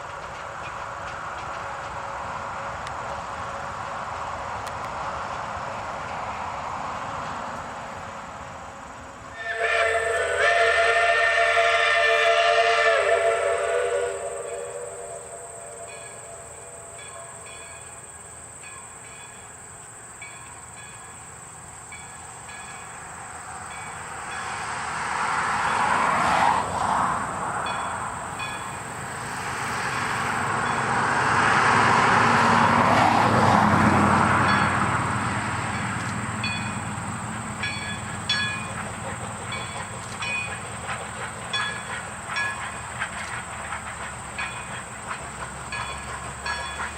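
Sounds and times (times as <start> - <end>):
train passing by: 0.0 - 46.9
train horn blast: 9.3 - 17.7.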